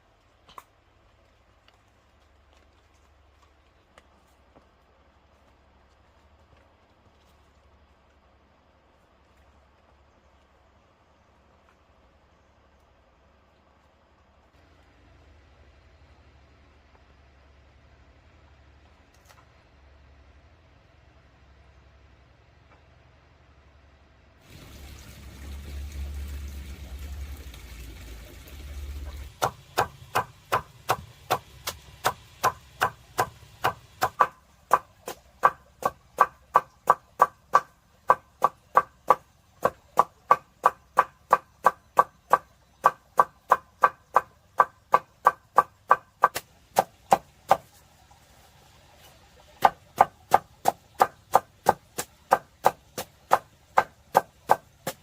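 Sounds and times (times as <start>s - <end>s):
tool striking wood: 29.4s - 47.7s.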